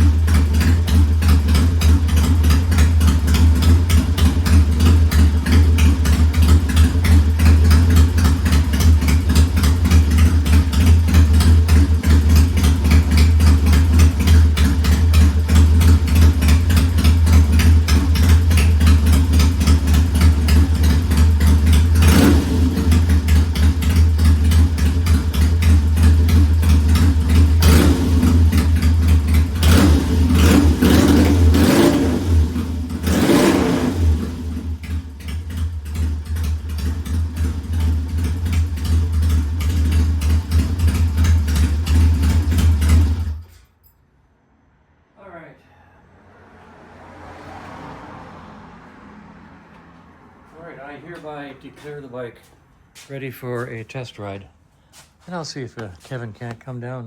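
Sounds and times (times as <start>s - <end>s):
motorcycle engine idling: 0.0s - 43.4s.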